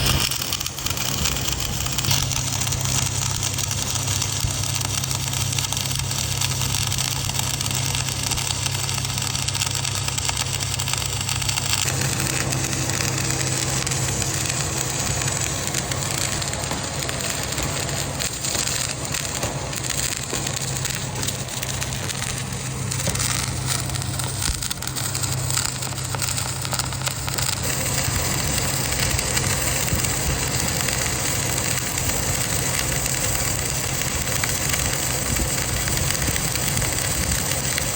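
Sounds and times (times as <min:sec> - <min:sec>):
low machine hum: 0:00.0 - 0:37.9
welding arc crackling hiss: 0:00.0 - 0:37.9.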